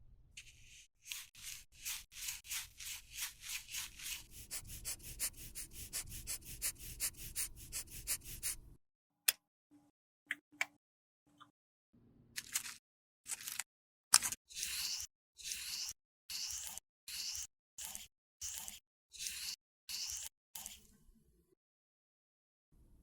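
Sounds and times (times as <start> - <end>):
tool scraping makeup product: 0.4 - 8.6, 14.2 - 20.9.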